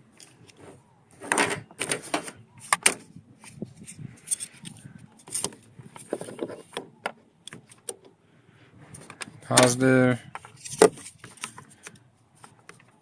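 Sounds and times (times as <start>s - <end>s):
jumper cables and clamps handled: 3.8s - 8.1s, 8.9s - 13.0s.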